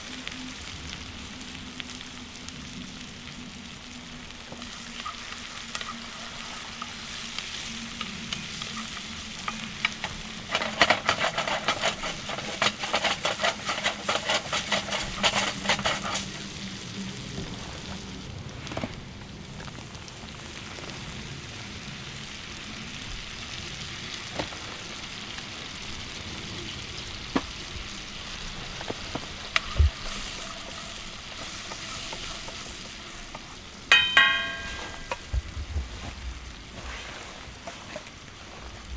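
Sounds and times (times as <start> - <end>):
sauce sizzling in a pan: 0.0 - 18.3, 19.3 - 35.4
stirring and scraping in a pan: 4.5 - 16.9, 28.3 - 38.9
metal utensil clinking pan: 10.0 - 16.3, 33.9 - 35.3.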